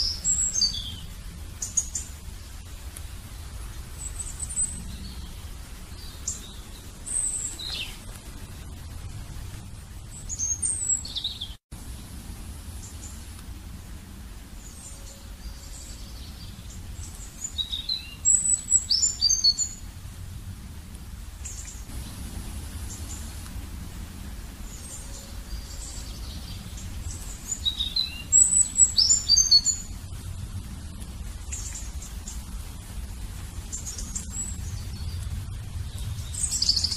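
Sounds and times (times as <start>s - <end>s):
small bird chirping: 0.0s - 2.7s, 3.4s - 8.2s, 10.0s - 11.6s, 14.6s - 19.8s, 24.6s - 32.8s, 33.6s - 36.9s
low background rumble: 0.0s - 36.9s.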